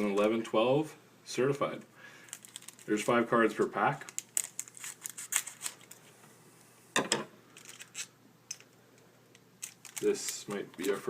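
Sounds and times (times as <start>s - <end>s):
foil wrapper crinkling: 2.2s - 6.1s, 7.5s - 8.1s, 9.6s - 11.0s.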